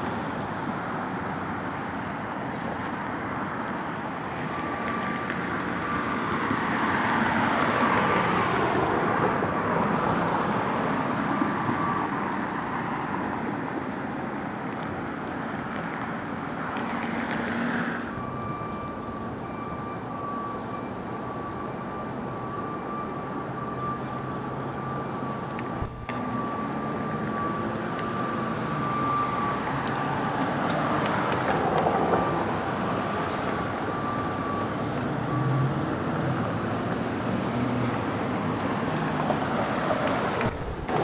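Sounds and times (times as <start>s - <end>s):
thin high whine: 25.8s - 26.3s, 40.4s - 41.0s
garbage truck engine running: 40.3s - 41.0s.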